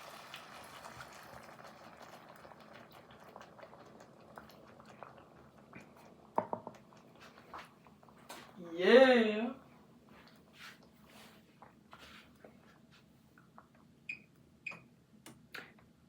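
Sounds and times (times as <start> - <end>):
salmon sizzling in a pan: 0.0 - 4.7.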